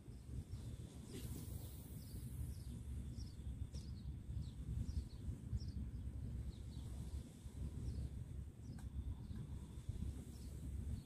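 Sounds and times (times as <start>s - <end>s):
sea: 0.0s - 11.0s
wind: 0.0s - 11.0s
small birds chirping: 1.0s - 7.2s.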